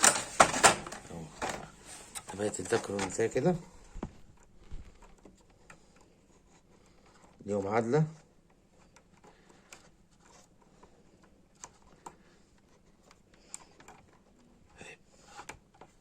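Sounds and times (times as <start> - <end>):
small clicks and taps: 1.4 - 16.0.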